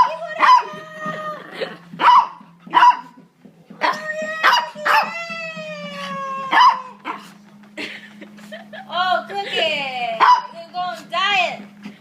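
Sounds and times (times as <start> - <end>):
small dog barking: 0.0 - 0.7, 2.0 - 3.2, 3.8 - 5.1, 6.5 - 7.3, 10.2 - 10.6
dog whining: 0.0 - 7.4.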